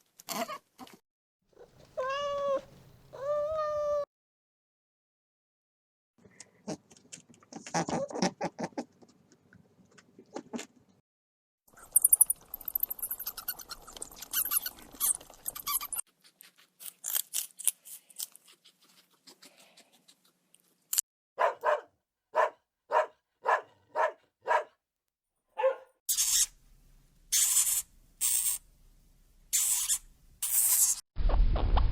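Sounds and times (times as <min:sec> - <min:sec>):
dog barking: 0:21.4 - 0:24.8, 0:25.5 - 0:26.0.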